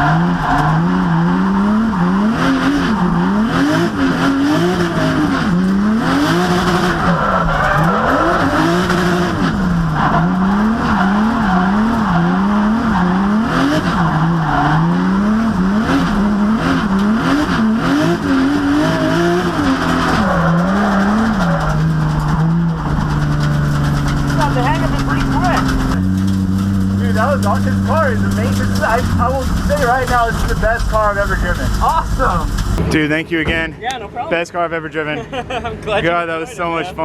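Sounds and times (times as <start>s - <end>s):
car engine revving: 0.0s - 33.1s
tyre squeal: 6.9s - 8.7s.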